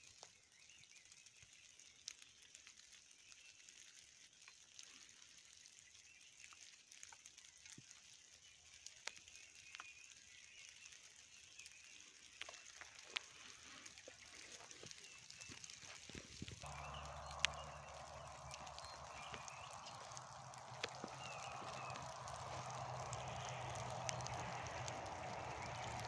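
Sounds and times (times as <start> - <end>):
distant bird calls: 16.6 - 26.0
soft clicks: 16.6 - 26.0.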